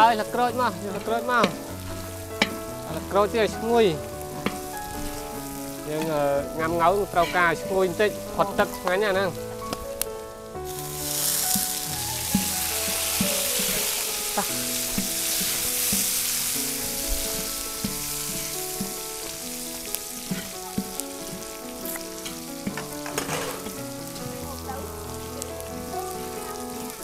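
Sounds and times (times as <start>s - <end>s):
leaves sizzling in hot oil: 0.0s - 27.0s
metal ladle scraping wok: 10.6s - 24.3s.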